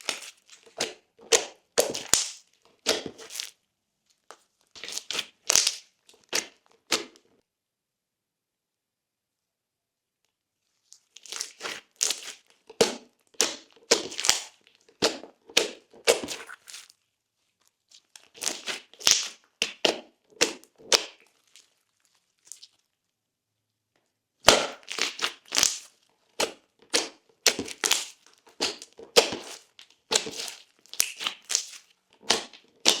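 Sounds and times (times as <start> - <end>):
slime crackling and popping: 0.0 - 3.6, 4.2 - 7.2, 11.0 - 17.0, 17.7 - 23.0, 24.4 - 33.0.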